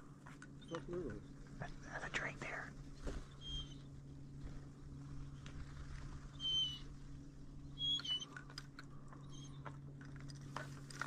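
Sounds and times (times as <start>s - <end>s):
low steady hum: 0.0s - 11.0s
high whistled calls: 3.3s - 3.9s, 6.3s - 6.9s, 7.7s - 8.4s
faint rustling clicks: 8.0s - 11.0s.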